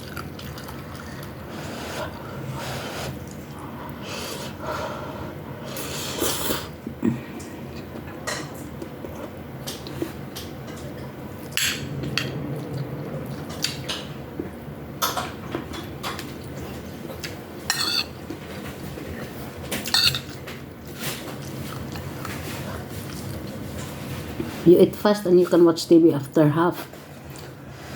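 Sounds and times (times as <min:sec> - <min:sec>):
cutlery clinking on a dish: 0:17.7 - 0:18.2, 0:19.8 - 0:20.4.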